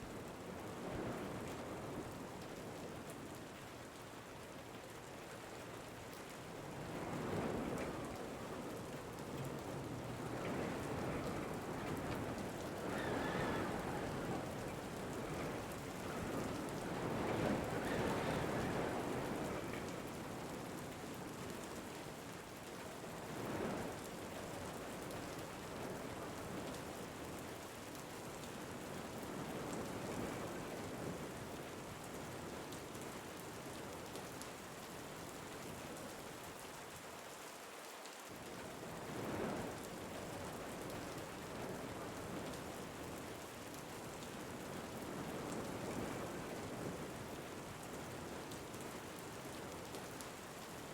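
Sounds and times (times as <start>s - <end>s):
steady rain falling: 0.0s - 50.9s
wind gusts: 6.6s - 21.6s.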